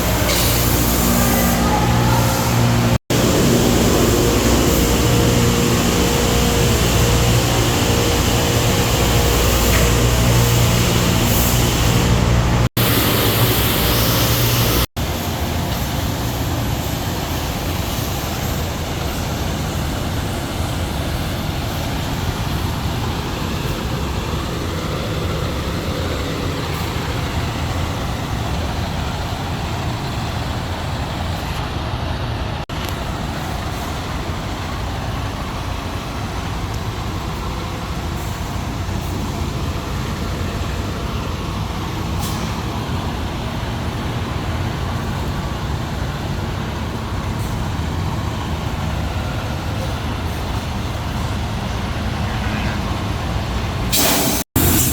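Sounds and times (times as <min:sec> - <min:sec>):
semi-truck running: 0:00.0 - 0:54.9.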